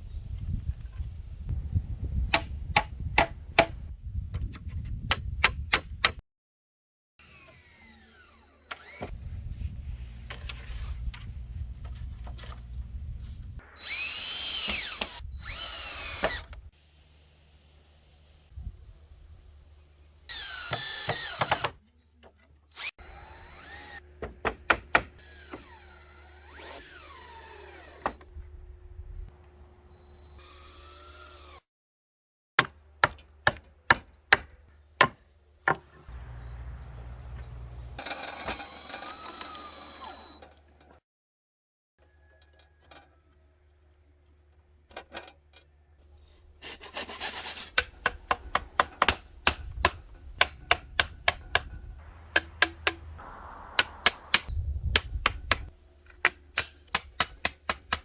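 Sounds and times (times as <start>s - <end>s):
power drill whining: 7.2s - 9.2s, 13.6s - 16.6s, 20.3s - 21.7s, 22.7s - 24.0s, 25.2s - 28.2s, 29.9s - 31.6s, 37.4s - 40.6s
low rumble: 51.8s - 54.9s.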